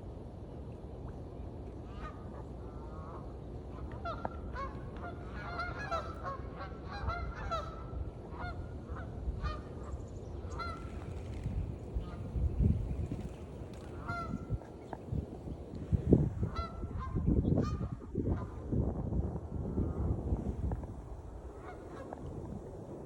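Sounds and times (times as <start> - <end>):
geese honking: 4.0 - 9.7, 10.5 - 11.1, 13.8 - 14.7
steady low rumble: 7.5 - 23.0.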